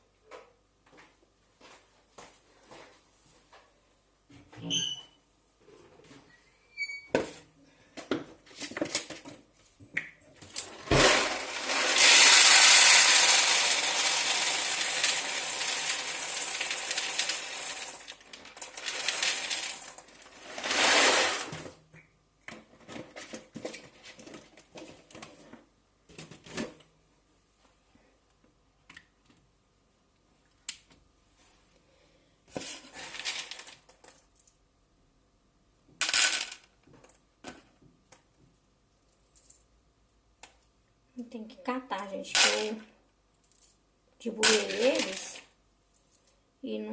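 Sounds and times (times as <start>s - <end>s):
pouring rush: 20.4s - 21.5s.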